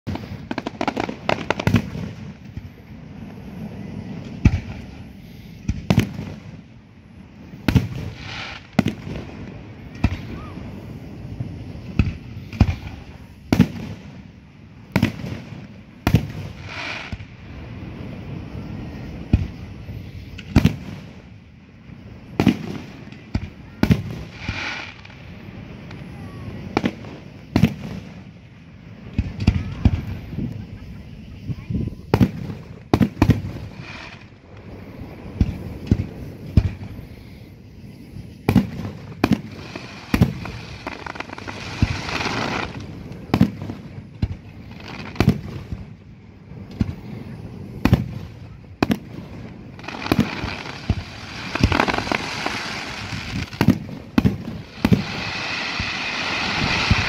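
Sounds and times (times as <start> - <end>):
firework shells bursting: 48.8 - 57.0.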